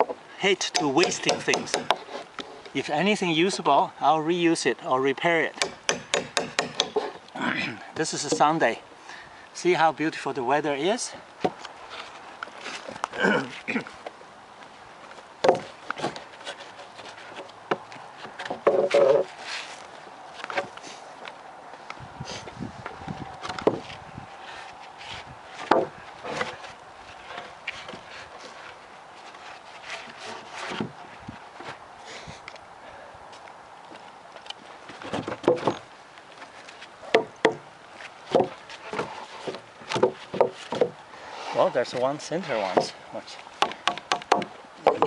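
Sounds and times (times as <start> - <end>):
wooden boards knocking: 0.0 - 2.1, 5.6 - 7.2, 15.4 - 16.2, 17.4 - 19.3, 23.4 - 23.8, 25.6 - 26.6, 35.0 - 35.8, 37.1 - 37.7, 38.3 - 41.0, 42.6 - 43.0, 43.6 - 45.0
wooden boards creaking: 0.0 - 2.8, 15.4 - 19.4, 23.1 - 24.1, 25.0 - 31.8, 34.4 - 35.9, 36.6 - 43.0, 43.6 - 45.0.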